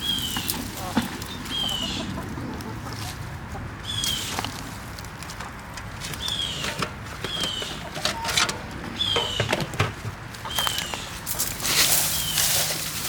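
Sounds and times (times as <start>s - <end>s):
chickens scratching and rustling: 0.0s - 13.0s.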